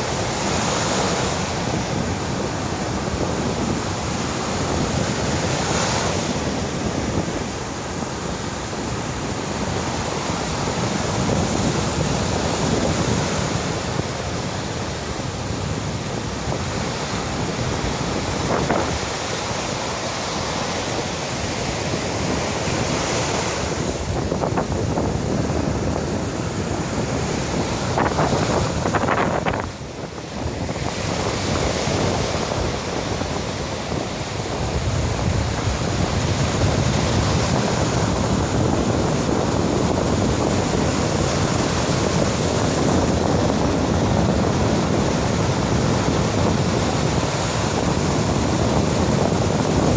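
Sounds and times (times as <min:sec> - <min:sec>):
surf breaking on shore: 0:00.0 - 0:49.9
wind buffeting microphone: 0:00.0 - 0:49.9.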